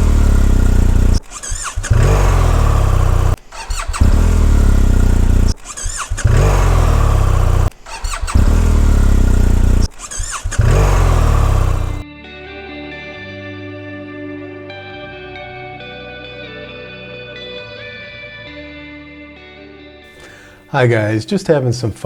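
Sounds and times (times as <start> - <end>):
motorcycle engine starting and running: 0.0 - 12.0
starter motor whine: 0.0 - 12.0.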